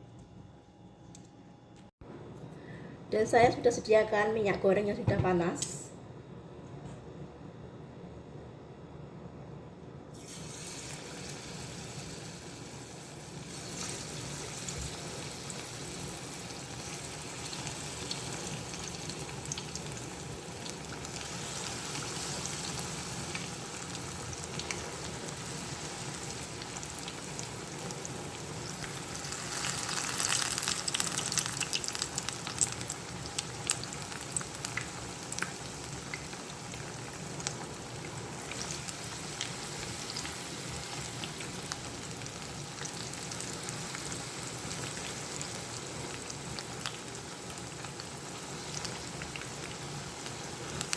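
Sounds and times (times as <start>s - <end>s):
battered food frying in hot oil: 10.2s - 50.9s.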